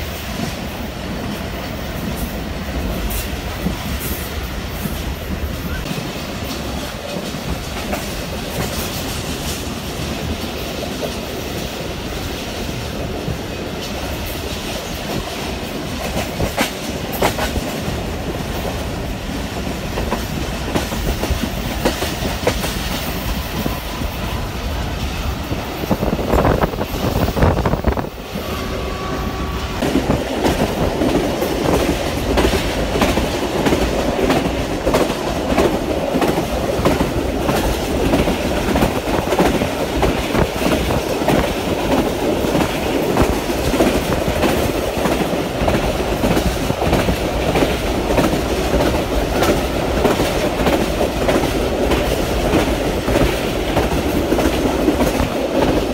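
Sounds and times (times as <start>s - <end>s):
rail joints clickety-clack: 0.0s - 55.9s
train wheels rumbling on rails: 0.0s - 55.9s.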